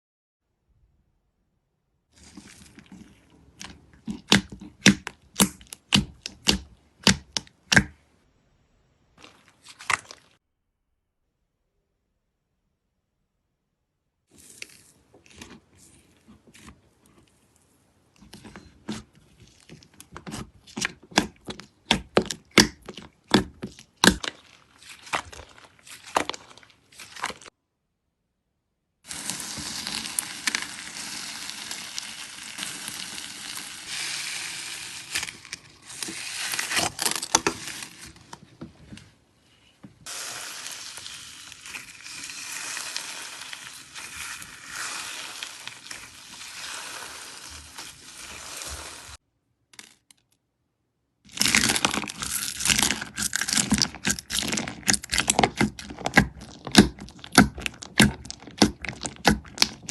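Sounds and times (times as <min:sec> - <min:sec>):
slime crackling and popping: 0:02.2 - 0:07.9, 0:18.2 - 0:27.5, 0:29.1 - 0:38.2, 0:40.1 - 0:48.9, 0:51.3 - 0:59.9.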